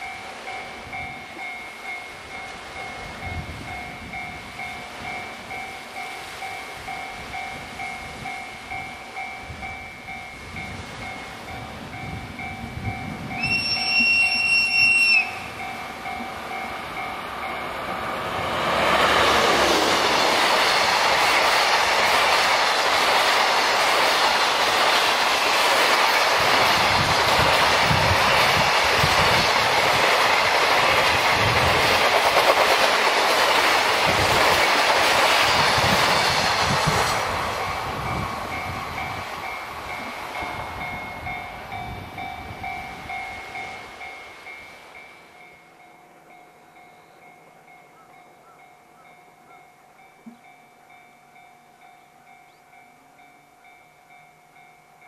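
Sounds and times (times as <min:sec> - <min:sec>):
locomotive engine and wheel noise: 0:00.0 - 0:49.0
locomotive horn blast: 0:13.4 - 0:15.6.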